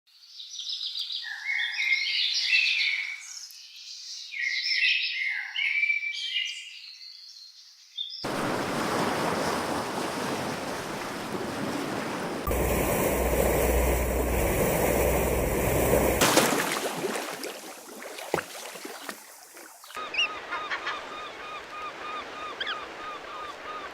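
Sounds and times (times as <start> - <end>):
songbirds chirping: 0.2 - 8.3
waves rushing: 8.2 - 20.0
loud rushing noise: 12.4 - 16.4
low rumble: 12.5 - 16.2.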